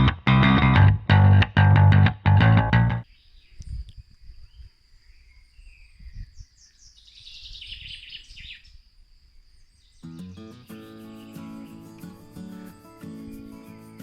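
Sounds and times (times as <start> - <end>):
birds chirping: 2.9 - 8.8, 9.6 - 14.0.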